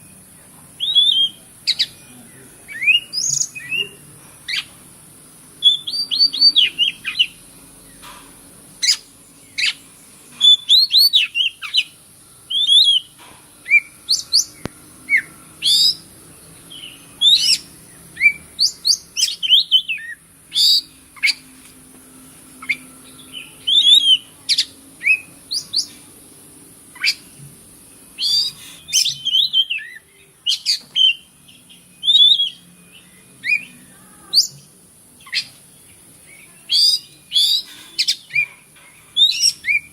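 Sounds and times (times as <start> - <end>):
steady high hiss: 0.0 - 39.9
bird singing whistles and chirps: 0.8 - 2.0, 2.7 - 4.7, 5.6 - 7.4, 10.4 - 16.1, 16.7 - 21.4, 22.6 - 25.9, 28.2 - 35.6, 36.3 - 38.5, 39.1 - 39.9.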